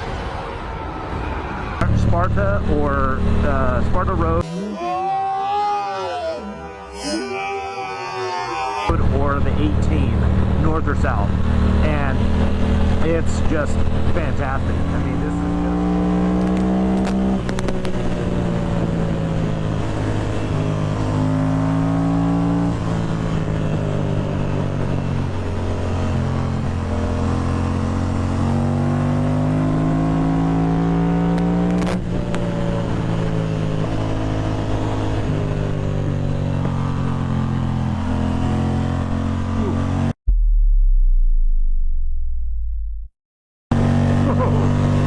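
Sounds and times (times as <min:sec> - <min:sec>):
road noise: 0:00.0 - 0:40.2, 0:43.7 - 0:45.0
motorcycle engine running: 0:08.9 - 0:38.1, 0:43.7 - 0:45.0.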